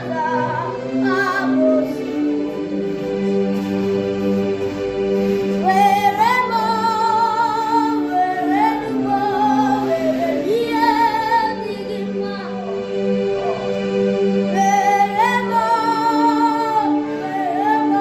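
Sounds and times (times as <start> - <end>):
woman singing with vibrato: 0.0 - 2.6, 5.6 - 12.6, 14.5 - 18.0
sustained instrumental accompaniment: 0.0 - 18.0.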